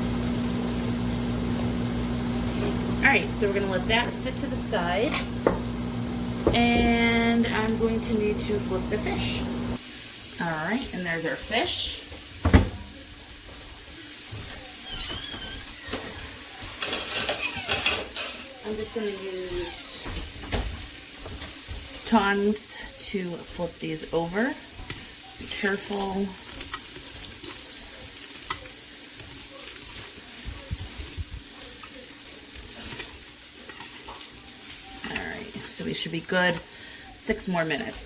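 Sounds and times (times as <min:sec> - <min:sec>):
fish sizzling in air fryer: 0:00.0 - 0:38.0.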